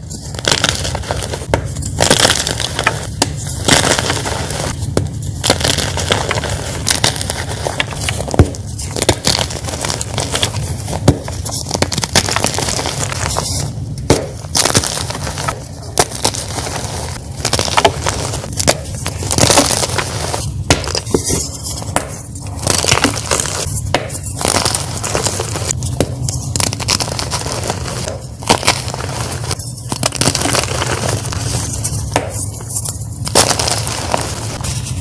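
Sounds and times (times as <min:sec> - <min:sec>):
chalk being crushed: 0:00.0 - 0:35.0.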